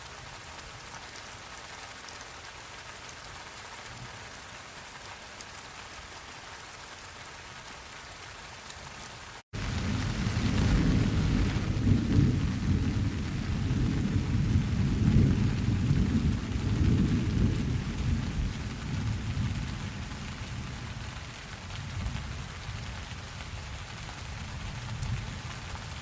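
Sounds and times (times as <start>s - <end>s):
steady rain: 0.0s - 26.0s
thunder rumbling: 9.6s - 22.9s.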